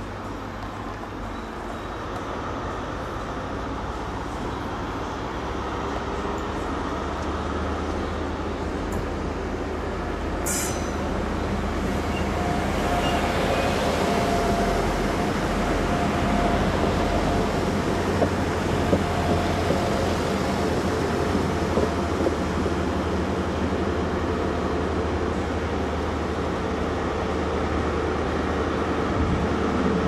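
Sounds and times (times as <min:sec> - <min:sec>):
train rumbling: 0:00.0 - 0:30.0
sharp high squeak: 0:10.4 - 0:11.0.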